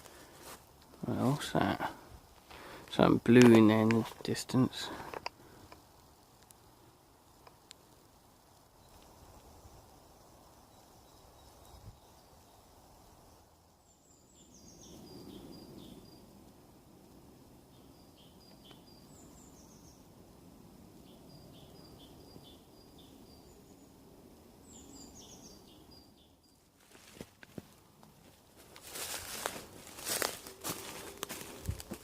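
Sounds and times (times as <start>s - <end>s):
low background hiss: 0.0s - 32.0s
sharp crackles: 2.4s - 11.8s, 26.7s - 32.0s
small bird singing: 13.8s - 16.4s, 17.6s - 20.2s, 21.0s - 26.7s.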